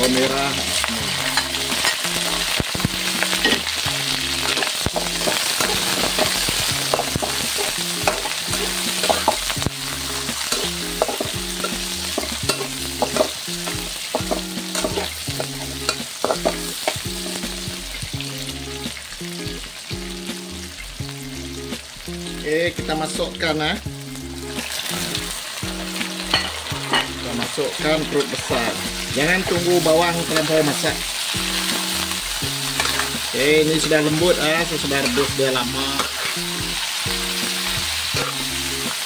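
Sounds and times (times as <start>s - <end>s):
metal spatula scraping a pan: 0.0s - 17.4s, 25.9s - 27.2s, 31.6s - 33.4s, 34.5s - 36.6s, 38.1s - 38.6s
vegetables sizzling in hot oil: 0.0s - 39.0s.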